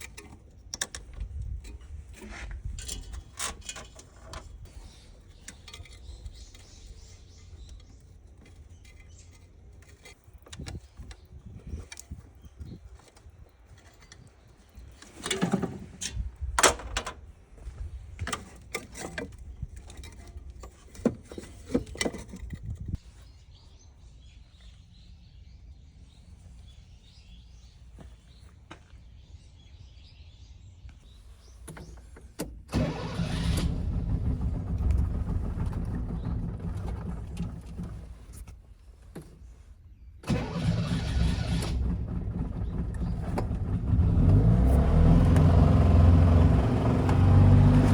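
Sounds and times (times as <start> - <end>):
car engine starting and running: 32.7 - 38.4, 40.2 - 47.9.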